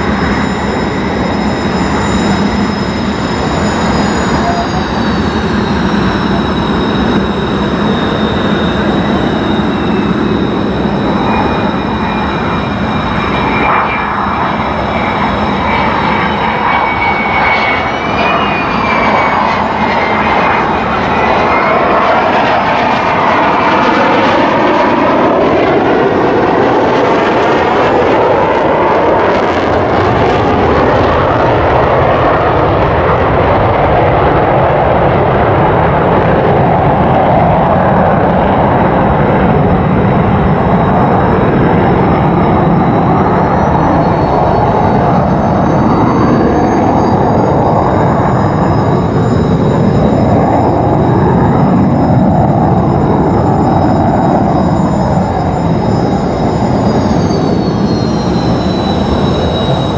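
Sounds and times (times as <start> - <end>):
jet engine whine and roar: 0.0 - 59.9.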